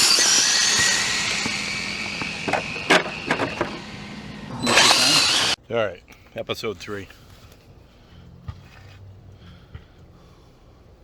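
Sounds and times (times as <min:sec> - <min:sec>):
electric motor whine: 0:00.0 - 0:05.6.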